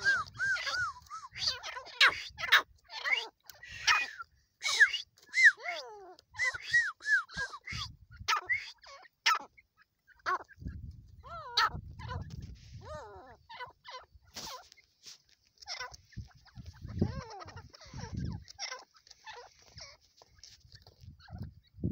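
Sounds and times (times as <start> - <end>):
partridge calling: 0.0 - 15.0, 15.6 - 21.9.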